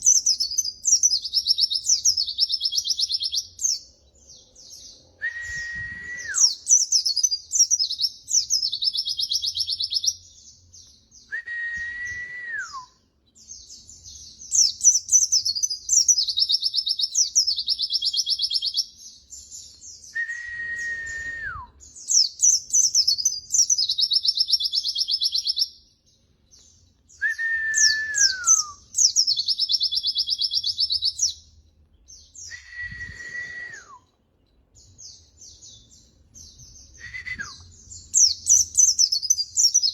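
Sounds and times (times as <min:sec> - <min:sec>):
recorded songbird song: 0:00.0 - 0:39.9.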